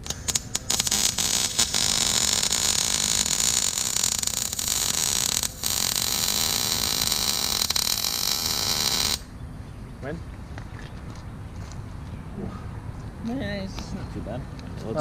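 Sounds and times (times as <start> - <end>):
welding arc crackling: 0.0 - 9.3.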